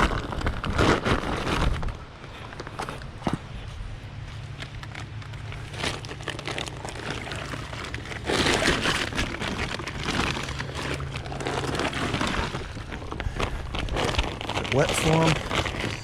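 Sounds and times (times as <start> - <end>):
fabric rustling: 5.2 - 16.0
water splashing: 5.6 - 13.3.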